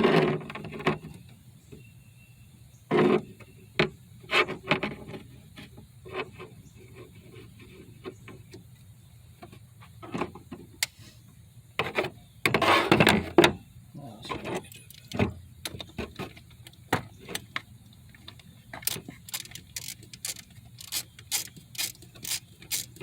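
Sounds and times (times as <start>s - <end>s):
hand tools clicking and scraping: 11.8s - 13.6s, 14.2s - 23.0s.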